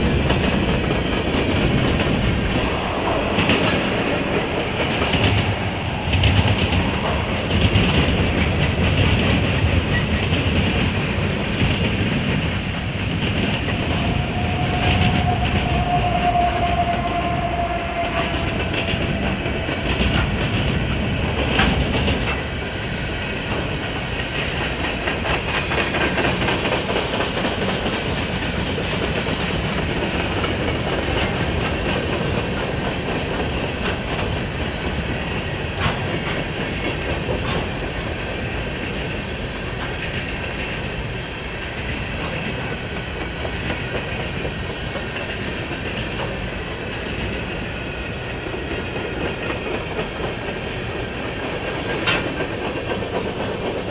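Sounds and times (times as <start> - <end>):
train wheels clickety-clack: 0.0 - 53.9
faint whining tone: 11.2 - 20.6.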